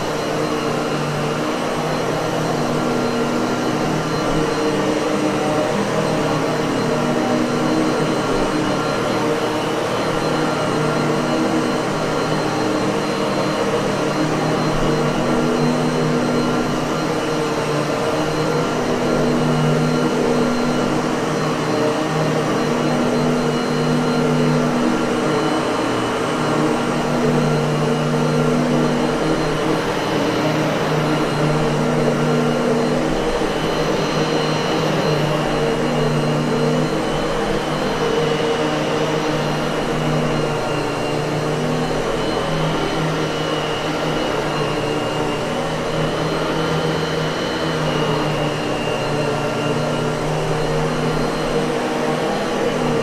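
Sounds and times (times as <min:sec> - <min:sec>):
vacuum cleaner motor running: 0:00.0 - 0:53.0.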